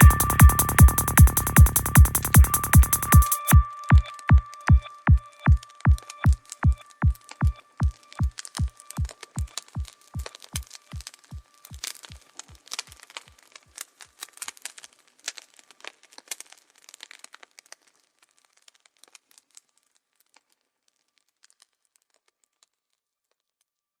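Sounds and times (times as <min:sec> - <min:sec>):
faint steady high tone: 0:00.0 - 0:09.4
electronic music kick drum: 0:00.0 - 0:11.8
dense crackling: 0:00.0 - 0:20.5.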